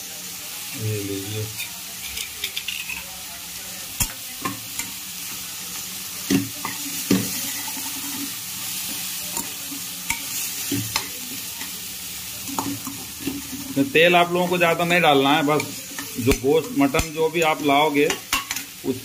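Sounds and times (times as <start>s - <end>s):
meat sizzling in a pan: 0.0s - 19.0s.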